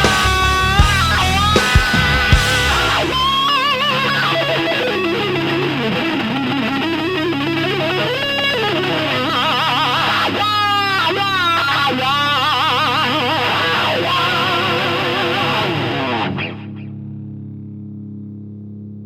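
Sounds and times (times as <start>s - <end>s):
bass line: 0.0s - 5.8s
distorted electric guitar solo: 0.0s - 18.6s.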